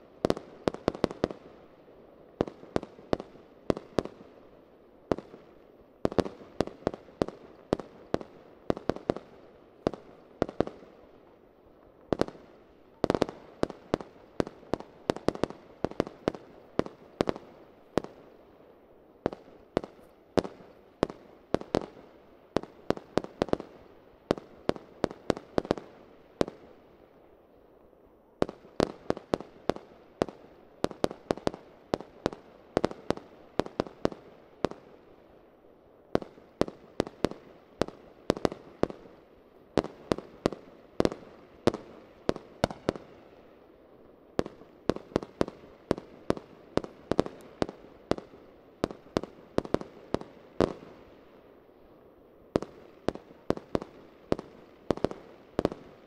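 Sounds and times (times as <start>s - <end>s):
fireworks bangs with echo: 39.7s - 43.2s.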